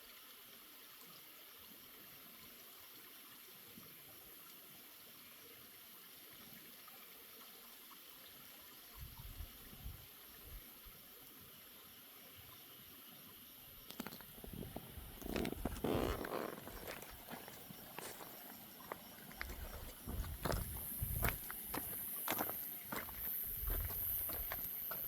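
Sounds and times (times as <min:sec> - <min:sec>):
faint steady hiss: 0:00.0 - 0:25.0
soft low thumps: 0:19.4 - 0:22.0.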